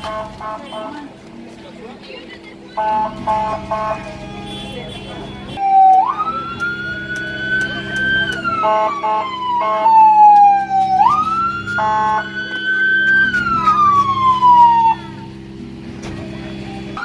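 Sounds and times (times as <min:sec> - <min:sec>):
short horn blasts: 0:00.0 - 0:01.1, 0:02.8 - 0:05.6, 0:11.7 - 0:12.4
engine hum: 0:00.0 - 0:17.0
emergency siren wailing: 0:05.6 - 0:15.3.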